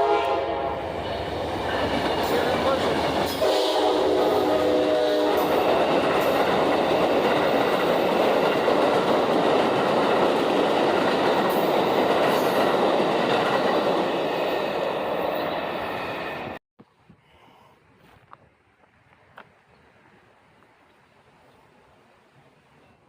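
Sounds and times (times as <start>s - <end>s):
train horn: 0.0s - 1.0s, 3.3s - 5.9s
train wheels rushing on rails: 0.0s - 16.6s.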